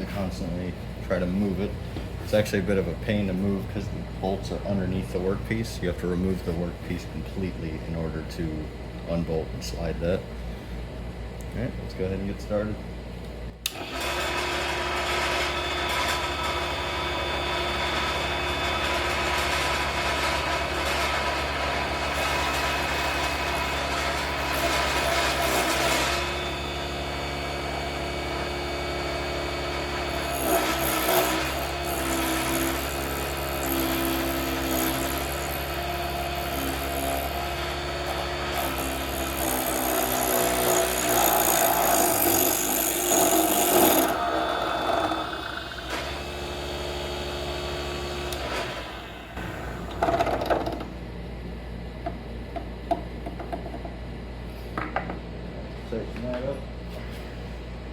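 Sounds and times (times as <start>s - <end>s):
lathe motor hum: 13.7s - 50.1s
turning tool scraping wood: 30.0s - 46.6s.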